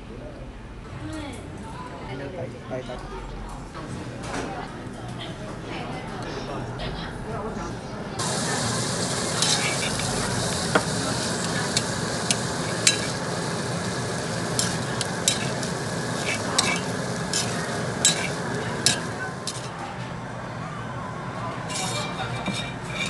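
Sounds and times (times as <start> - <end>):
food sizzling in hot pot: 8.2 - 19.8, 21.6 - 23.0.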